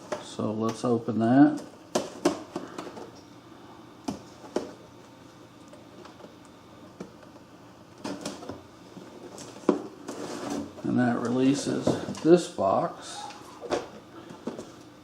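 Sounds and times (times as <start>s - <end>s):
cardboard packaging being handled: 8.0s - 12.4s.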